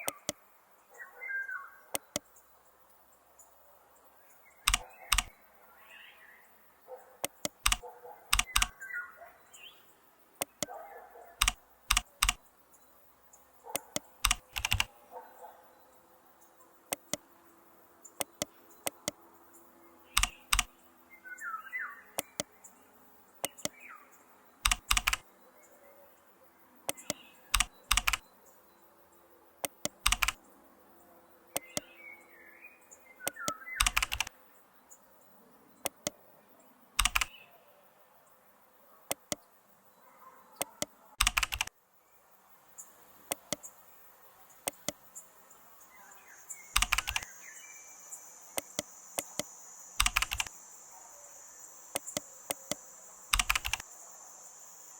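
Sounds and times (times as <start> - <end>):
computer clicks: 0.0 - 0.4, 1.9 - 2.4, 4.6 - 5.4, 7.2 - 8.9, 10.4 - 10.7, 11.4 - 12.5, 13.7 - 14.9, 16.9 - 17.3, 18.2 - 19.2, 20.1 - 20.8, 22.2 - 22.6, 23.4 - 23.8, 24.6 - 25.3, 26.9 - 28.3, 29.6 - 30.4, 31.5 - 31.9, 33.2 - 34.4, 35.8 - 36.2, 37.0 - 37.4, 39.1 - 39.5, 40.6 - 41.7, 43.3 - 43.7, 44.6 - 45.0, 46.7 - 47.3, 48.6 - 50.6, 51.9 - 53.9.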